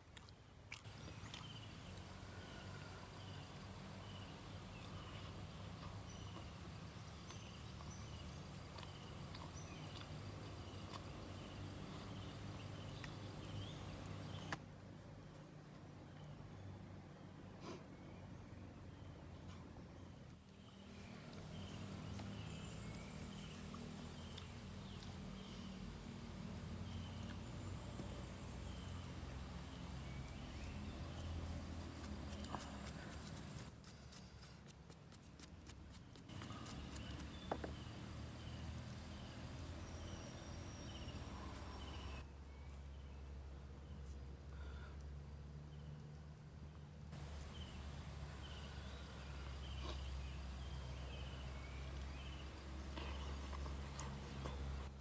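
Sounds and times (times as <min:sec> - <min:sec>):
insects droning: 0:00.9 - 0:14.6, 0:20.4 - 0:42.3, 0:47.2 - 0:55.0.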